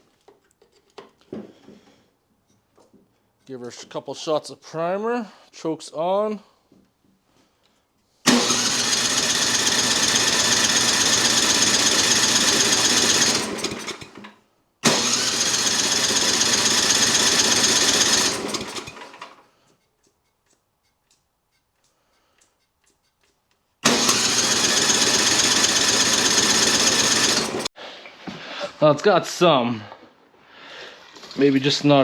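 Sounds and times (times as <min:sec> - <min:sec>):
snowblower engine cranking: 0:08.3 - 0:19.5, 0:23.8 - 0:27.7.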